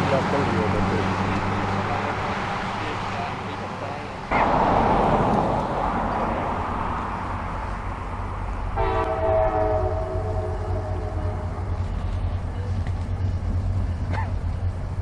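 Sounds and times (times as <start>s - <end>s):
train rumbling by: 0.0s - 15.0s
train horn chord: 8.8s - 12.7s.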